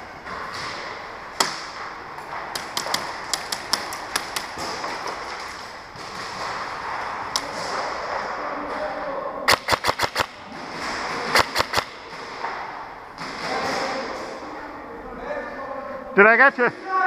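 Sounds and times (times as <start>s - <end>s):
airsoft gun shots: 9.5s - 12.3s.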